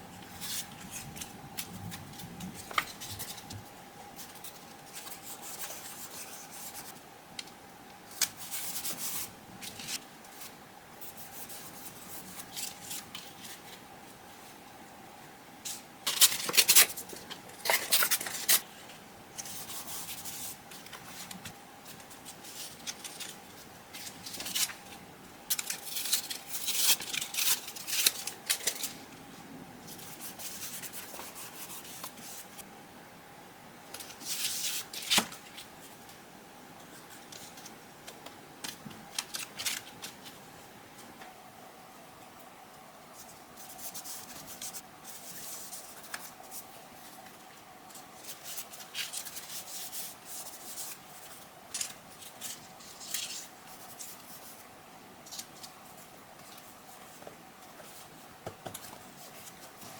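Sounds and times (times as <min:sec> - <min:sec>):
paper rustling: 0:19.4 - 0:29.1, 0:36.9 - 0:40.4, 0:43.2 - 0:54.6.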